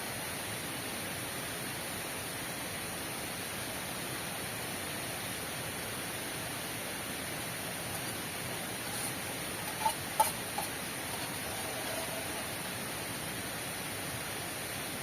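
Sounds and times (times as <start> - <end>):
heavy rain falling: 6.2 - 15.0.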